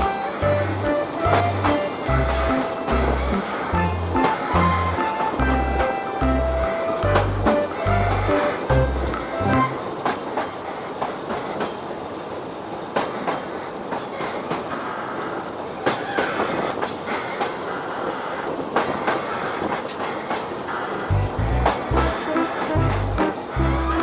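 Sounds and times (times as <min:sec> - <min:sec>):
wheels clacking and knocking: 0:00.0 - 0:10.3, 0:21.1 - 0:24.0.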